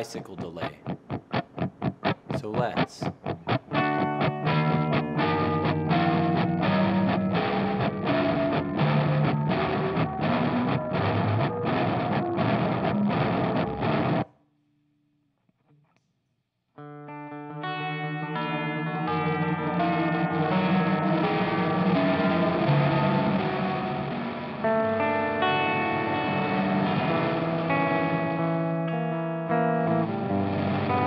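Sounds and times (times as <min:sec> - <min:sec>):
gritty electric guitar notes: 0:00.0 - 0:14.3, 0:16.8 - 0:31.0.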